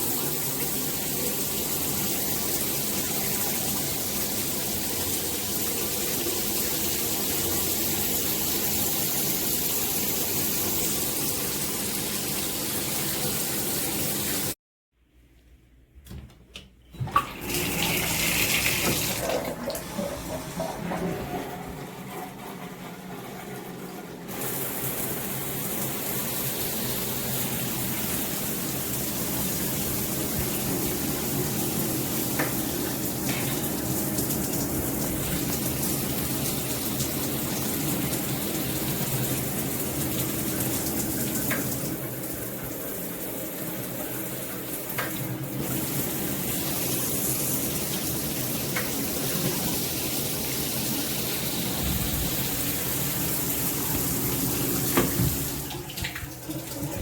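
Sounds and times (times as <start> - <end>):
water spraying from shower head: 45.5 - 57.0.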